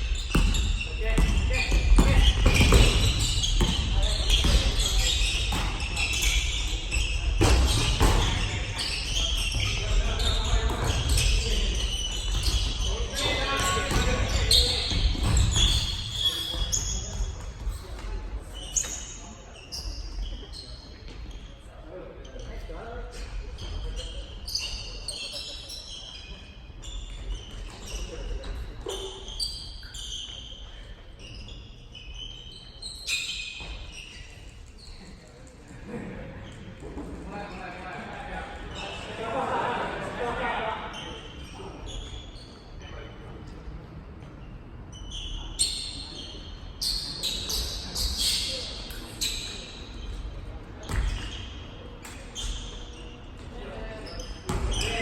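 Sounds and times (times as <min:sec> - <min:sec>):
shoes squeaking on gym floor: 0:00.0 - 0:37.8, 0:38.5 - 0:39.2, 0:40.9 - 0:55.0
basketball bouncing: 0:00.2 - 0:06.4, 0:54.5 - 0:54.8.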